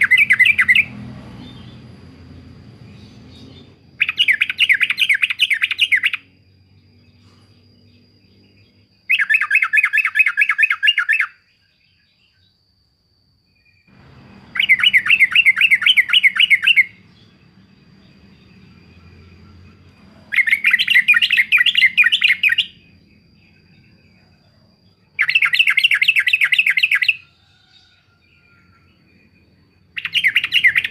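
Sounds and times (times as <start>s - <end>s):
bulbul rapid chattering call: 14.1s - 17.4s.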